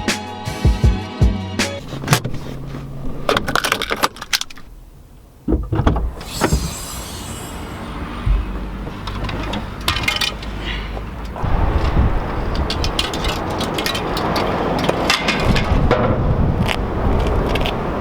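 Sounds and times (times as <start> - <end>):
car engine rumbling: 1.8 - 18.0
clicks knocks and rattles: 3.3 - 4.7, 9.0 - 10.6, 11.2 - 16.2.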